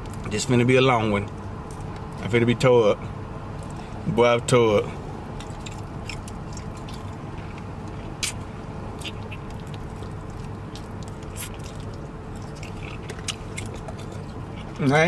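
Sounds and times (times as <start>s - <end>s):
steady low hum: 0.0s - 15.0s
man chewing ribs: 3.1s - 15.0s.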